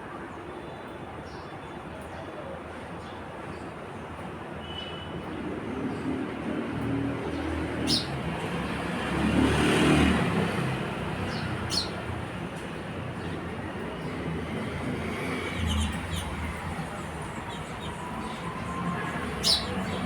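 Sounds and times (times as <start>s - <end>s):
road vehicle passing: 5.8s - 20.0s
sparrow chirps: 7.1s - 8.5s, 10.3s - 20.0s.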